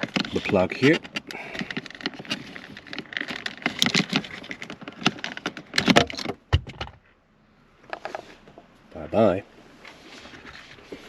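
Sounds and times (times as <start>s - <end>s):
plastic clicks and rattles: 0.0s - 7.0s.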